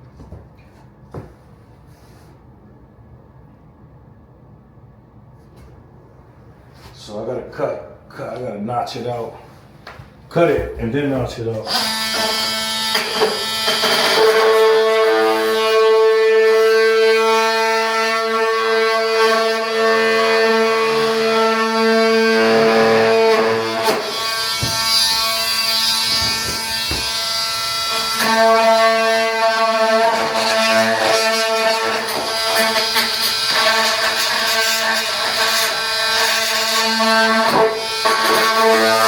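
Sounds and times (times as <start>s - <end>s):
power tool buzzing: 11.6s - 39.0s.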